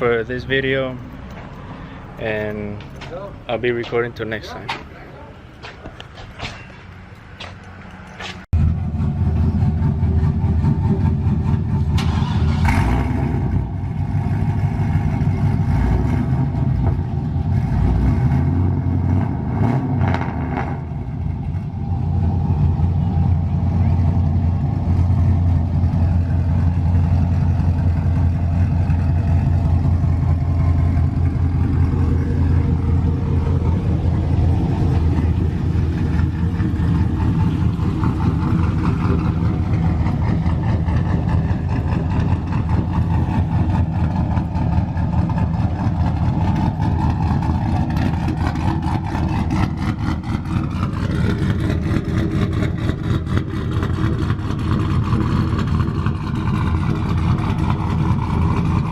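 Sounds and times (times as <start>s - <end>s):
truck engine exhaust drone: 0.0s - 58.9s.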